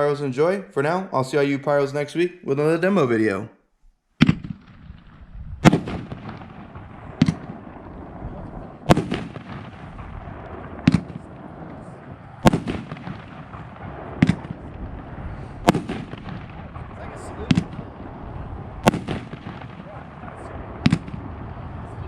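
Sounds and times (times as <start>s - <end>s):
loud sharp firework reports: 4.2s - 22.0s.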